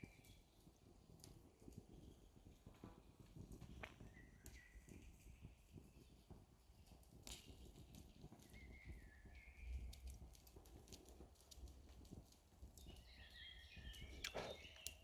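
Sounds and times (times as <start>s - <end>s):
light clicks and crackles: 0.0s - 15.0s
small bird chirping: 12.7s - 15.0s.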